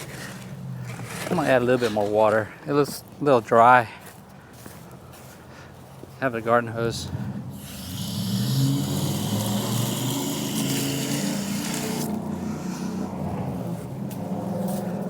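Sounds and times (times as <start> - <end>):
low motor hum: 7.0 - 15.0
garden hose spraying water: 7.5 - 12.4.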